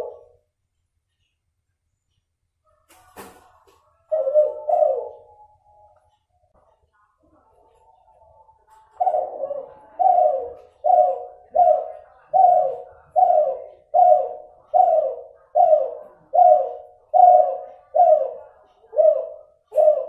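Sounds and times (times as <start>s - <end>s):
dove cooing: 0.0s - 0.4s, 4.0s - 5.9s, 7.7s - 20.0s.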